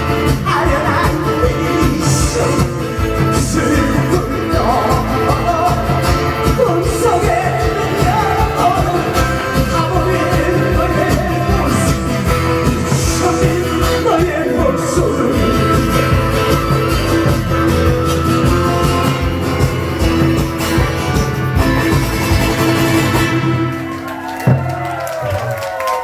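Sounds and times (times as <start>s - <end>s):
man singing through pa: 0.0s - 16.6s
amplified guitar accompaniment: 0.0s - 25.8s.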